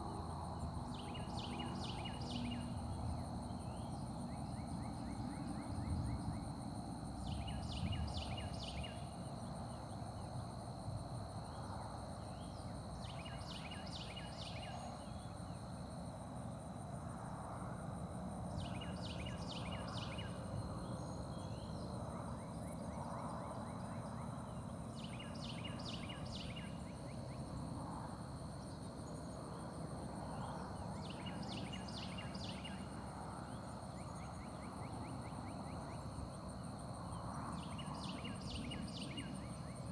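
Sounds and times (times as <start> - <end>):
steady high-pitched whine: 0.0 - 39.9
wren singing rolling song: 0.7 - 9.9, 12.3 - 15.5, 18.5 - 27.4, 30.0 - 39.9.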